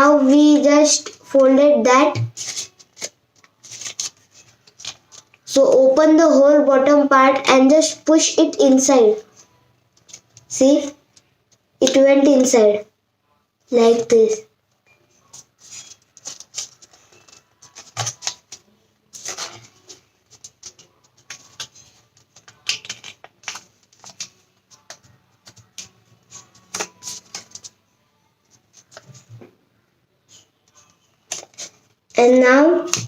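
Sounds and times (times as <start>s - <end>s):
paper crinkling and rustling: 2.2s - 5.5s, 15.2s - 27.8s, 28.5s - 29.4s, 30.3s - 32.0s
paper crackling: 2.2s - 5.6s, 15.3s - 27.8s, 30.3s - 33.0s.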